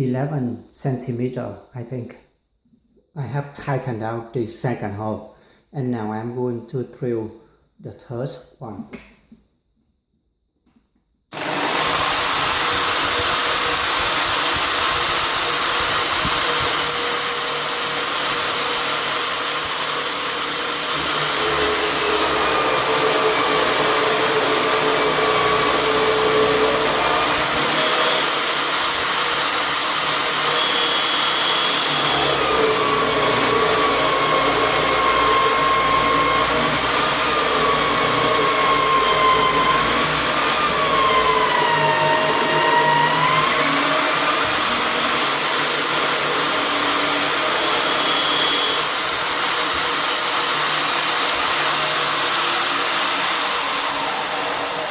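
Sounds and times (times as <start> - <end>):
electric drill boring into wood: 11.3 - 54.9.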